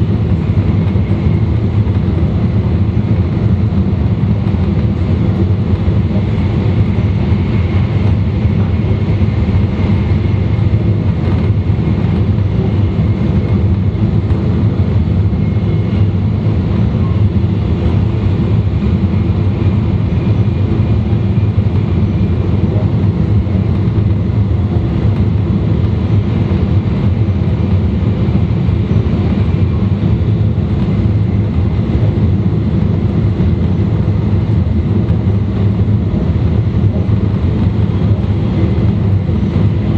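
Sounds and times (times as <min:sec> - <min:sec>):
train wheels and motors rumbling: 0:00.0 - 0:39.9.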